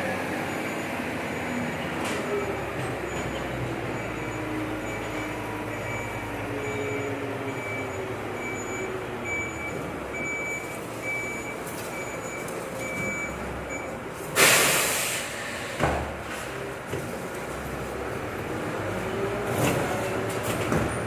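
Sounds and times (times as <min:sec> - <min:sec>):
truck engine: 0:00.0 - 0:21.0
reversing alarm beeping: 0:00.3 - 0:14.0
air brakes hissing: 0:14.3 - 0:15.9.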